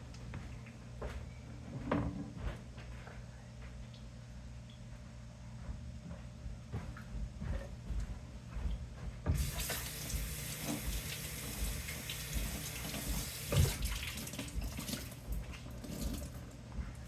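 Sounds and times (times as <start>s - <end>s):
tap water running into sink: 9.4s - 16.4s.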